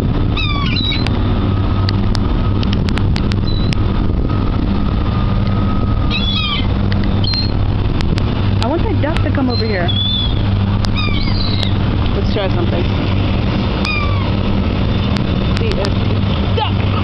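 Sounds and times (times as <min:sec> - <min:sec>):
gulls calling: 0:00.0 - 0:02.6, 0:03.2 - 0:17.0
steady low rumble: 0:00.0 - 0:17.0.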